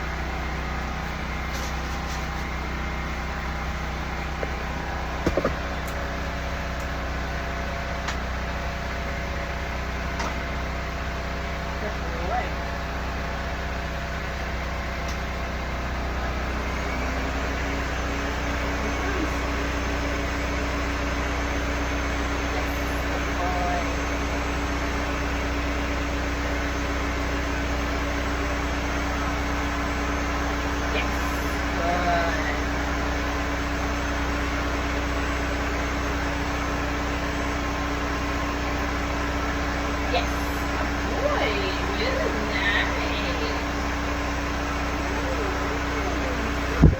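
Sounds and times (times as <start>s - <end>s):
blow dryer running: 0.0s - 46.9s
brief knocks: 5.2s - 5.6s.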